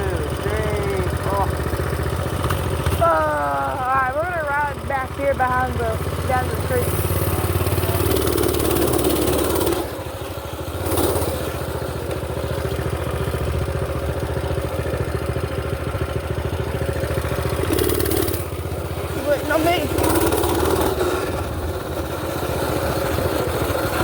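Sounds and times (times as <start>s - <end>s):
small engine running: 0.0s - 24.0s.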